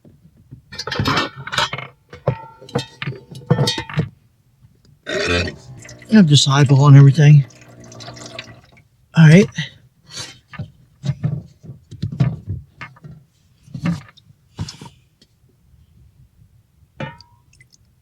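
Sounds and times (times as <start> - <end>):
cookware knocks and scrapes: 0.7 - 4.1.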